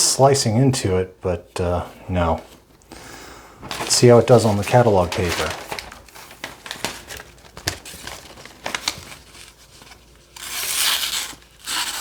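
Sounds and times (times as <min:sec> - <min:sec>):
knife tearing through paper: 0:03.8 - 0:12.0.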